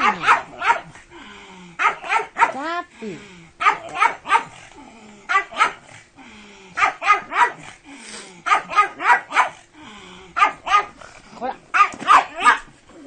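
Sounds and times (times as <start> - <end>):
dog barking: 0.0 - 1.0, 1.8 - 2.6, 3.6 - 4.6, 5.3 - 5.9, 6.8 - 7.7, 8.4 - 9.6, 10.4 - 11.0, 11.7 - 12.7.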